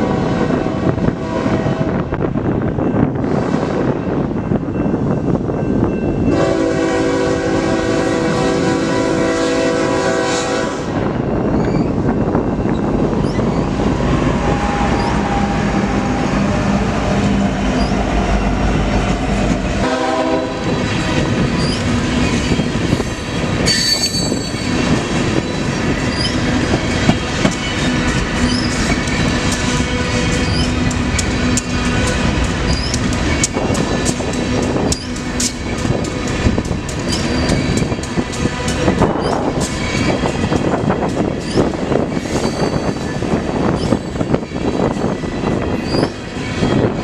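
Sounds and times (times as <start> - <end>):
train air horn blasts: 0.0 - 2.1, 3.2 - 4.0, 6.3 - 11.1, 14.2 - 16.9, 19.8 - 22.0
freight train rumbling past: 0.0 - 47.0.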